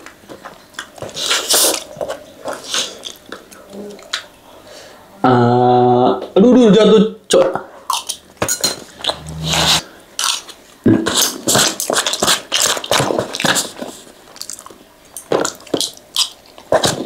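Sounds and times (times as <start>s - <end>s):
chewing noodles: 8.9s - 17.0s.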